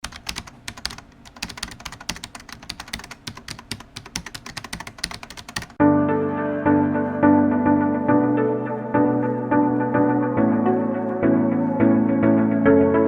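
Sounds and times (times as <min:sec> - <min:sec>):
computer keyboard typing: 0:00.0 - 0:05.8
music with keyboard chords: 0:05.8 - 0:13.0.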